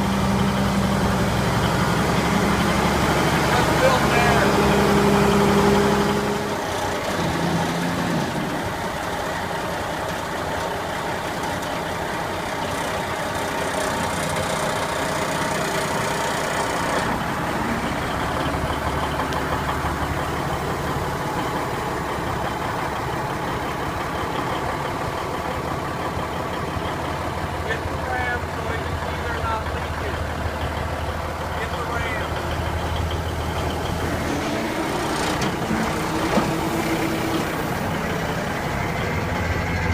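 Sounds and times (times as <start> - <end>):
truck diesel engine idling: 0.0 - 39.9.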